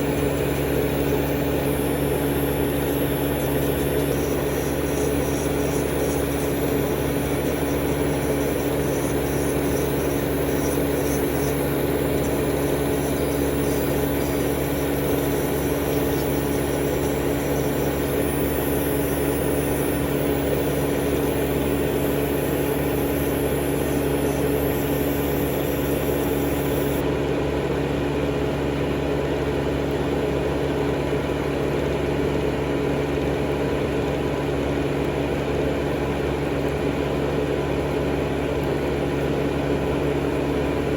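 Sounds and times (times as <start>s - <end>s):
high hiss: 0.0s - 27.0s
electric motor hum: 0.0s - 27.1s.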